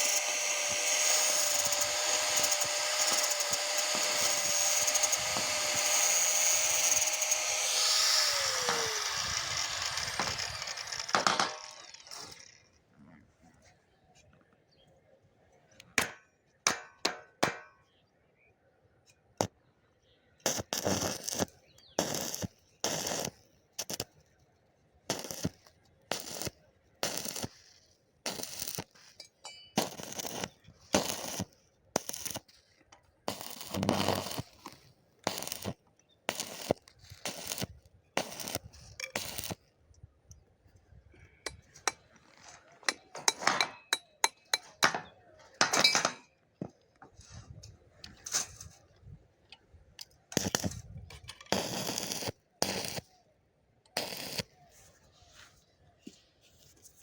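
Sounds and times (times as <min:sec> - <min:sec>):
welding bursts: 0:00.0 - 0:12.7, 0:20.4 - 0:24.2, 0:25.1 - 0:32.6, 0:33.2 - 0:39.7, 0:50.4 - 0:53.1, 0:53.9 - 0:54.6.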